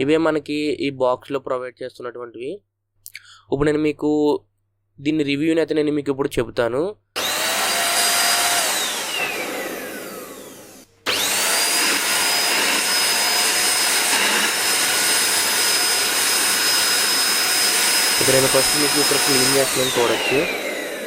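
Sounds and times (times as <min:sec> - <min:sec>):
vacuum cleaner motor whine: 0:07.2 - 0:21.0.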